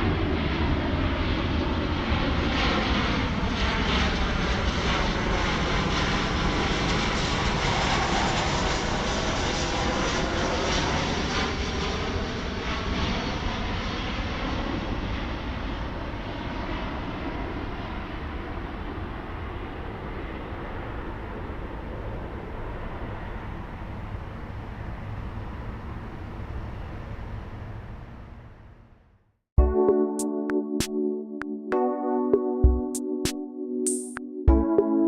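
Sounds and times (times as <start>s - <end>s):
airliner jet engine rush: 0.0s - 28.9s.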